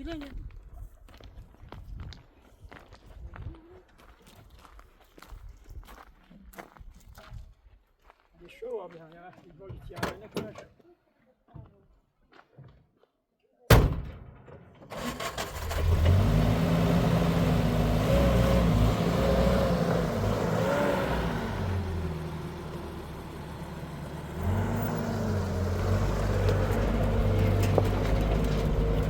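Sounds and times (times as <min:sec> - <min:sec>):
car engine running: 0:15.6 - 0:29.0.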